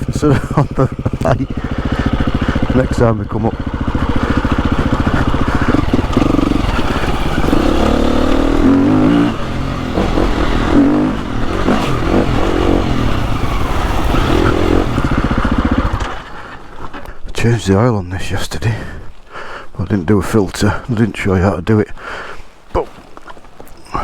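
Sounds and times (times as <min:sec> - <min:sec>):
motorbike engine revving: 0:00.0 - 0:17.0.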